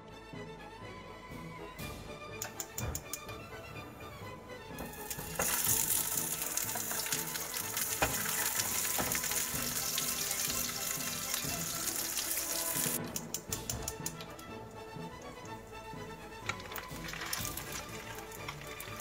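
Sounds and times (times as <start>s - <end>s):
dumplings sizzling in hot oil: 4.8s - 19.0s
oil crackling: 4.8s - 19.0s.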